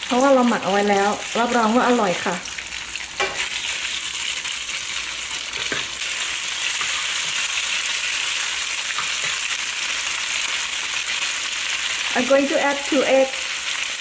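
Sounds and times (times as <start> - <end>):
meat and garlic sizzling in oil: 0.0 - 14.0
spatula scraping a pan: 5.5 - 9.6.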